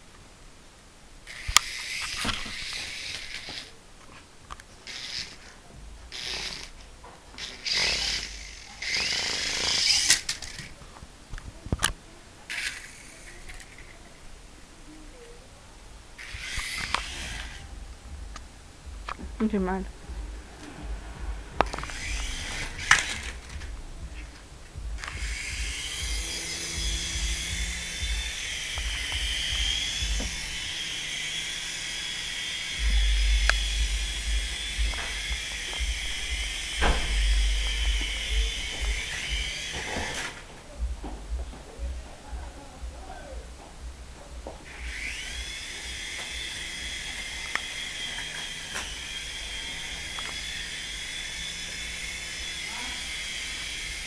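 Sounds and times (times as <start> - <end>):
toy helicopter motor whining: 1.3 - 3.8, 4.8 - 5.5, 6.1 - 6.8, 7.4 - 10.8, 12.5 - 14.0, 16.2 - 17.7, 21.7 - 23.6, 25.0 - 40.4, 44.7 - 54.0
sharp knocks: 32.8 - 39.0.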